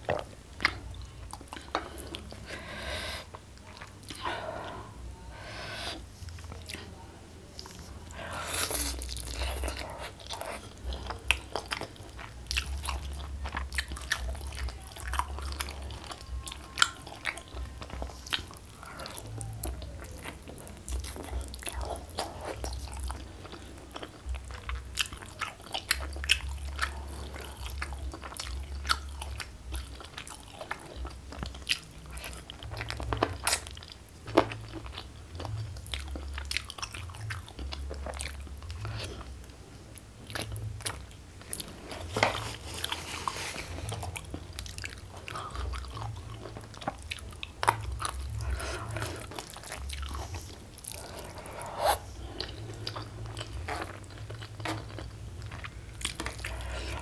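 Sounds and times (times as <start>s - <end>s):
person chewing food: 0.0s - 57.0s.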